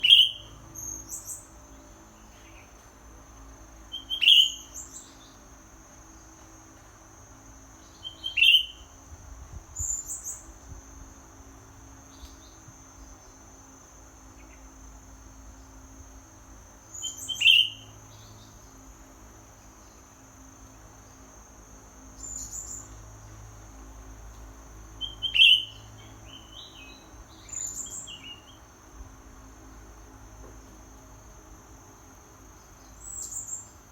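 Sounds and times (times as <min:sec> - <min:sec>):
bird chirping calls: 0:00.0 - 0:01.5, 0:03.9 - 0:05.2, 0:07.9 - 0:08.8, 0:17.0 - 0:17.9, 0:25.0 - 0:28.6.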